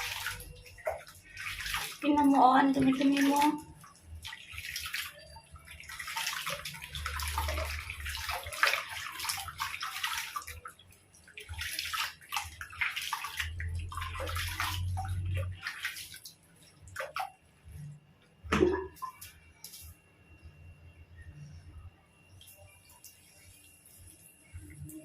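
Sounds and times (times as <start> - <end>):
water splashing in a tub: 0.0 - 19.9.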